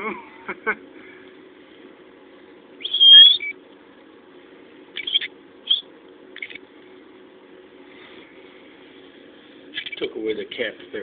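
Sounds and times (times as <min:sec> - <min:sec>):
fledgling bird calling: 0:02.8 - 0:03.6, 0:05.0 - 0:05.8.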